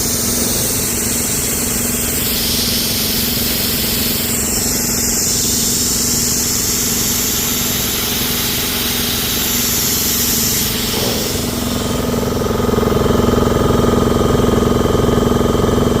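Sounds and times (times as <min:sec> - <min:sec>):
snowmaking gun spraying hiss: 0:00.0 - 0:13.0
small engine running: 0:00.0 - 0:16.0.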